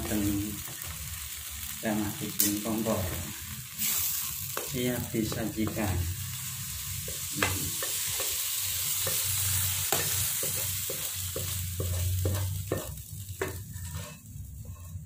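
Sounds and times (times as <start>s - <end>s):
porridge sizzling in a wok: 0.0s - 15.0s
utensil scraping and tapping pan: 9.9s - 15.0s.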